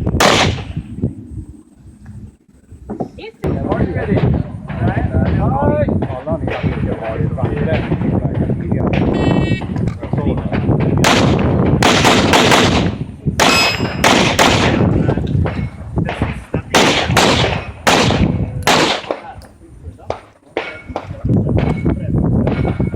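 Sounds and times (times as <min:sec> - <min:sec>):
handgun shots with echo: 0:15.5 - 0:19.3.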